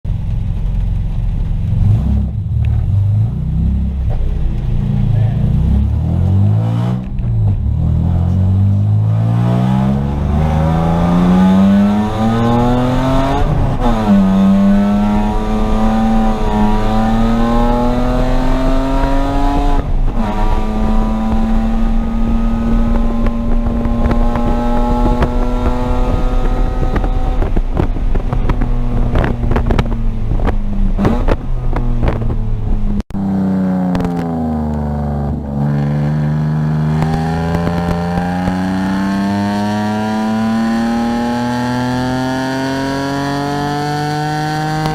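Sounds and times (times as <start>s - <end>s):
car engine accelerating: 0.1s - 44.9s
engine pops and clicks: 22.9s - 32.8s.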